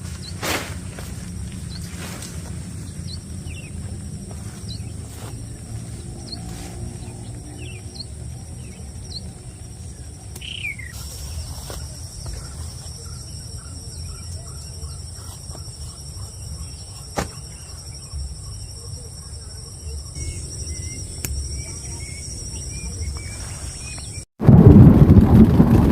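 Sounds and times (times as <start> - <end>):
bird chirps: 0.0 - 24.3
high-pitched insect drone: 0.0 - 24.3
low wind rumble: 0.0 - 25.9.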